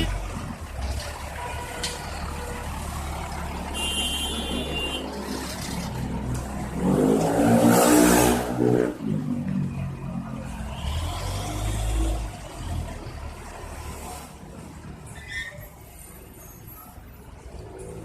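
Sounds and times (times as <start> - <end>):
truck diesel engines rumbling: 0.0 - 18.0.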